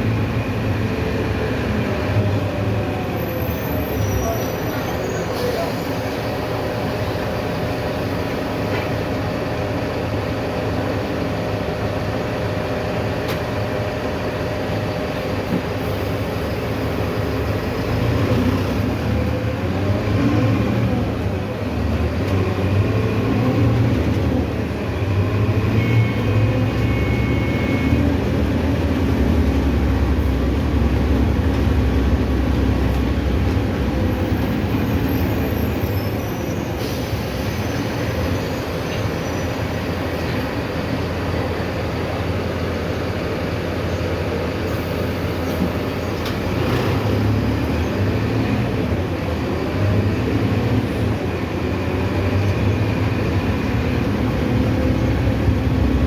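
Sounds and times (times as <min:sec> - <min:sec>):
bus diesel engine running: 0:00.0 - 0:56.0
road and body noise: 0:13.2 - 0:56.0.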